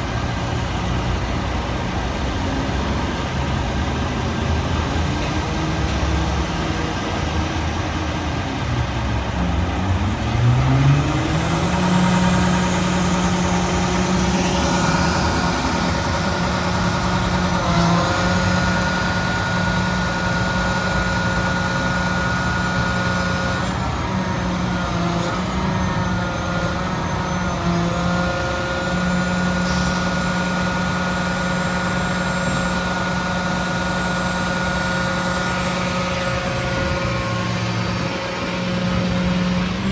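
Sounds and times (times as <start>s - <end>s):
garbage truck engine running: 0.0s - 39.9s
steady whine: 11.0s - 39.9s.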